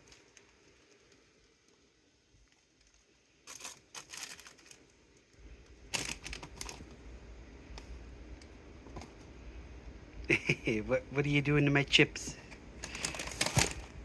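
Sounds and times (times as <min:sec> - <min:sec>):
plastic bag crinkling: 0:00.0 - 0:01.8, 0:02.4 - 0:07.0, 0:12.8 - 0:14.0.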